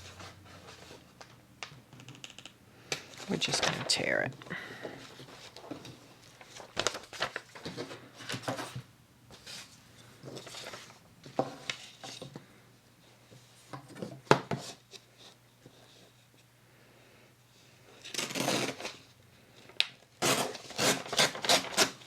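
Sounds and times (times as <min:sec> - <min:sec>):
paper ripping and rustling: 0:05.1 - 0:08.8, 0:18.0 - 0:19.0, 0:20.2 - 0:22.0.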